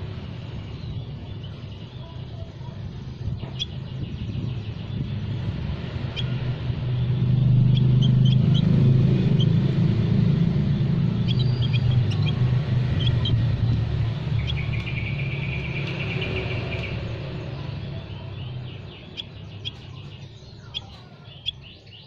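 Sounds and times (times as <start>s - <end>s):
low rumble: 2.7s - 20.8s
faint high bird chirps: 11.2s - 13.5s, 14.1s - 22.0s.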